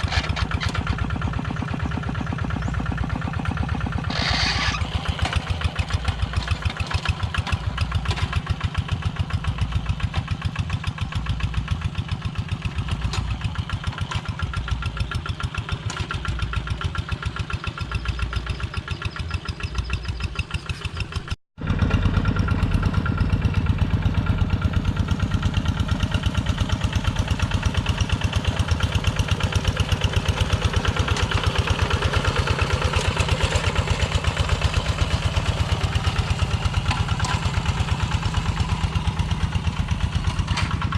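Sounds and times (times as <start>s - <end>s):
diesel tractor engine thudding: 20.8s - 40.9s.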